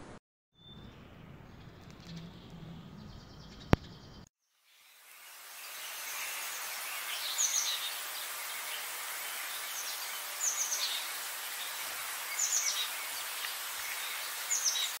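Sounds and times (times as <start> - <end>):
high outdoor hiss: 4.5 - 15.0.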